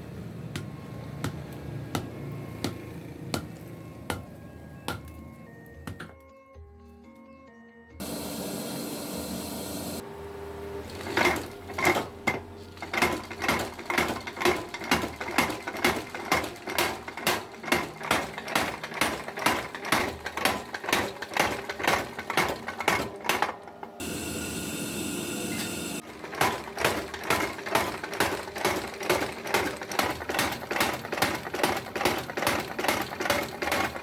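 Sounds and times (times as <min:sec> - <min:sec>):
hammer striking hot steel on anvil: 0:00.5 - 0:06.2, 0:13.0 - 0:23.5.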